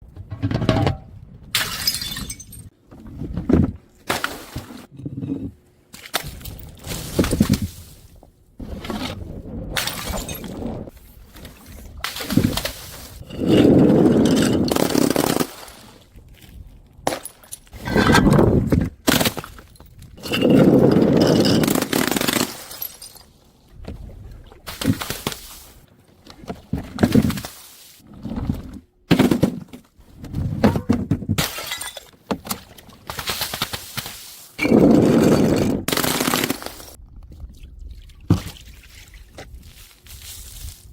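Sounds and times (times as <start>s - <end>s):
glass bottles smashing: 1.6s - 2.7s, 9.8s - 10.5s, 31.4s - 32.1s.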